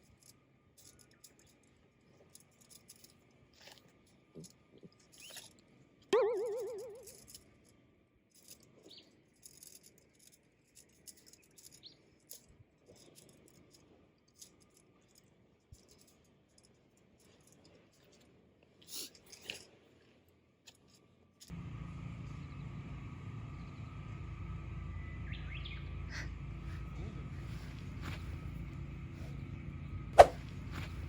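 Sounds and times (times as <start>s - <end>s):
bird chirps: 6.2s - 7.2s, 24.9s - 28.2s
bird warbling call: 6.2s - 7.2s.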